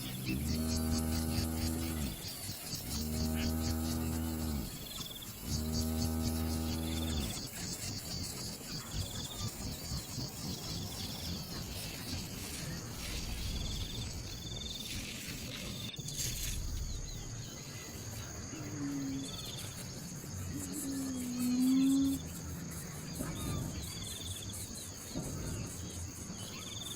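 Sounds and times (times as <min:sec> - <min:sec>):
low hum: 0:00.0 - 0:02.3, 0:10.4 - 0:22.4
insects chirping: 0:00.0 - 0:26.9.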